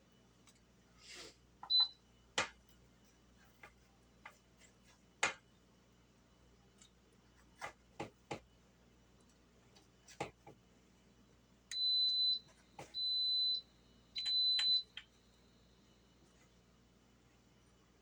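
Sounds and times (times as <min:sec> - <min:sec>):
high-pitched pressure cooker beeps: 0:01.6 - 0:02.0, 0:11.7 - 0:12.4, 0:13.0 - 0:13.6, 0:14.2 - 0:14.9.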